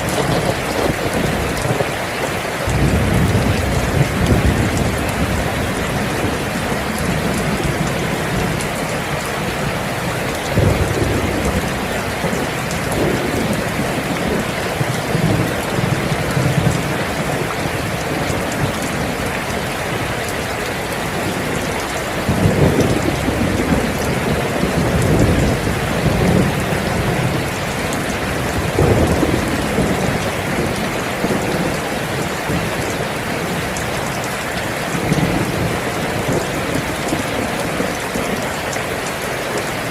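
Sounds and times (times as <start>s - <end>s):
low rolls of thunder: 0.0s - 1.9s, 2.7s - 19.7s, 21.2s - 34.0s
steady rain falling: 0.0s - 39.9s.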